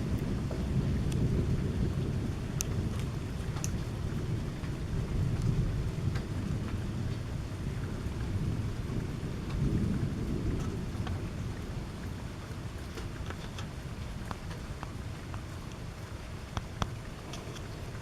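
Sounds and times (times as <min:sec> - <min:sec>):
raindrops ticking: 0:00.0 - 0:18.0
thunder rumbling: 0:00.0 - 0:18.0.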